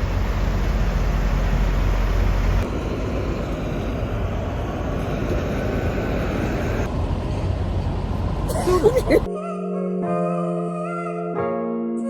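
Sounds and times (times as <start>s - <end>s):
vehicle road rumble: 0.0s - 9.3s.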